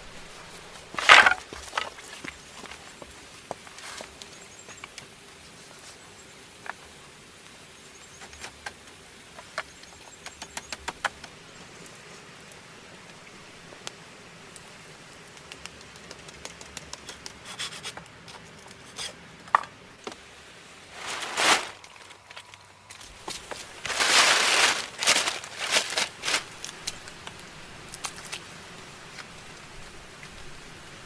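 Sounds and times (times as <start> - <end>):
wooden sticks clicking and tapping: 9.4 - 11.4, 15.2 - 20.2
rustling swish: 20.9 - 21.9.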